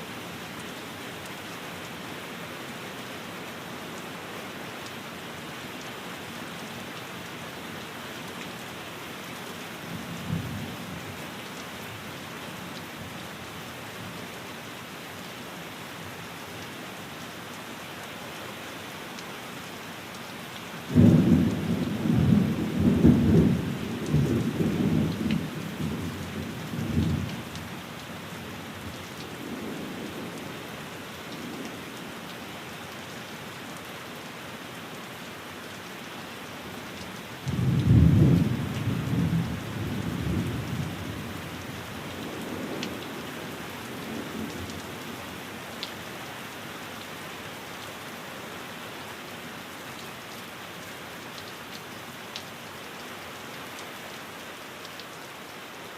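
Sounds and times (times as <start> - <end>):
steady rain: 0.0 - 55.9.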